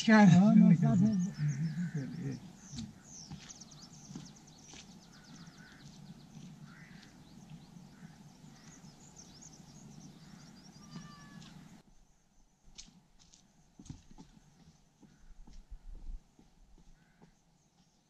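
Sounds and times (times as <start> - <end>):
lower bird calls: 0.0 - 11.8
birds chirping and trilling: 0.0 - 12.5.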